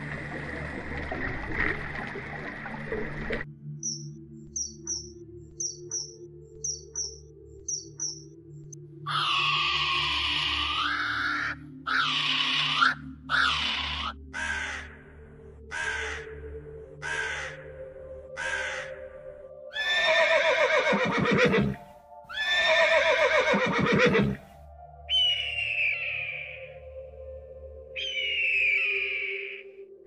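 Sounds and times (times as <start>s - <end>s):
background music: 0.0s - 30.0s
hawk scream: 9.1s - 14.8s
harsh raven calls: 9.1s - 19.0s, 19.7s - 24.4s, 28.0s - 29.7s
shrill repeated bird whistles: 25.1s - 26.6s, 28.0s - 29.7s.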